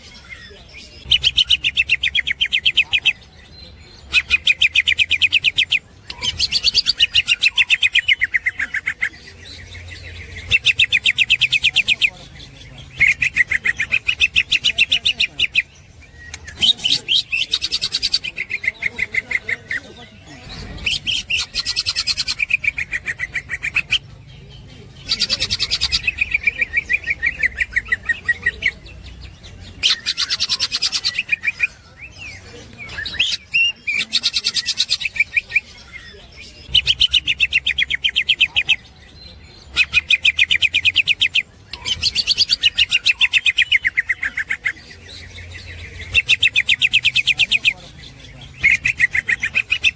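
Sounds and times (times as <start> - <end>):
bird singing chattering song: 0.0 - 49.9.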